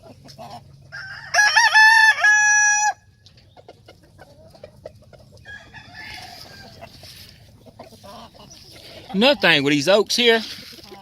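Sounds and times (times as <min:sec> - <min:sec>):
rooster crowing: 0:00.9 - 0:03.1, 0:05.4 - 0:06.8
soft clucking: 0:06.1 - 0:09.2.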